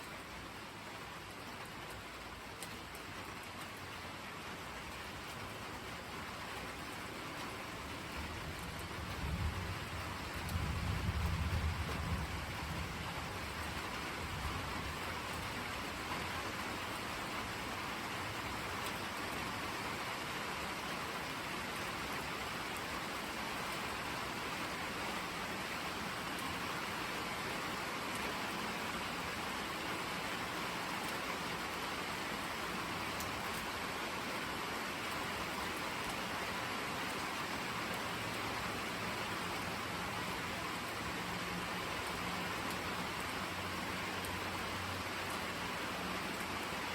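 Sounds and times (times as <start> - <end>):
steady rain falling: 0.0 - 46.9
low thunder rumble: 8.9 - 14.8.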